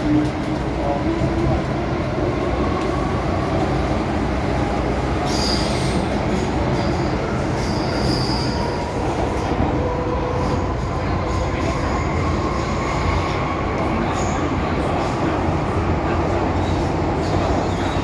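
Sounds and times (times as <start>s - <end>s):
electric train rumbling: 0.0s - 18.0s
high-pitched wheel squeal: 7.6s - 8.7s.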